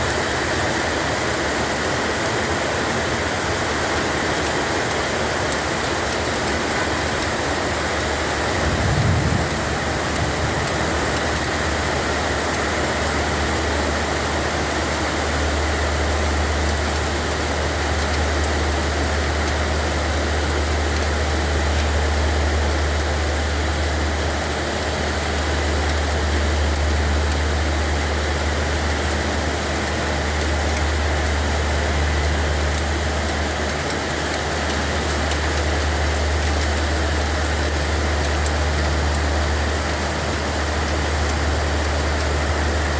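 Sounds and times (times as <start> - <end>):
heavy rain hiss: 0.0 - 42.9
low rumble: 8.6 - 11.3.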